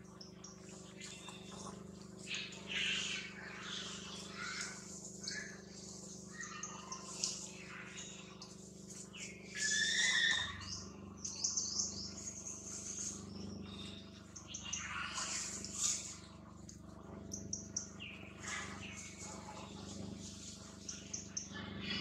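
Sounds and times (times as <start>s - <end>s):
small birds chirping: 0.0s - 22.0s
bird whistled call: 9.2s - 12.0s.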